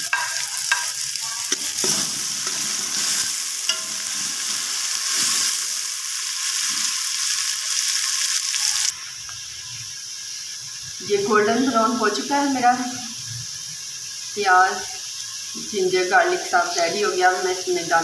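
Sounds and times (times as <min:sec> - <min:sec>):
metal spoon scraping a pot: 0:00.0 - 0:05.4
onions sizzling in hot oil: 0:00.0 - 0:18.0.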